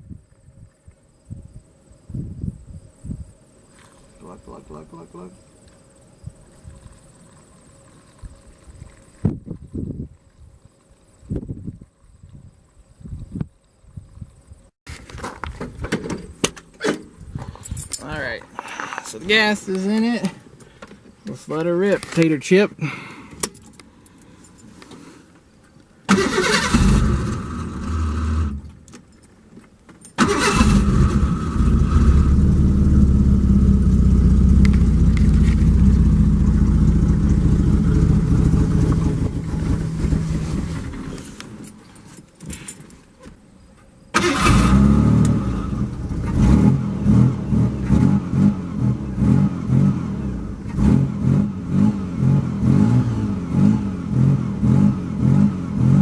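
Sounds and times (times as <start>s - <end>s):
car engine starting and running: 26.1s - 28.8s, 30.2s - 41.8s, 44.2s - 56.0s.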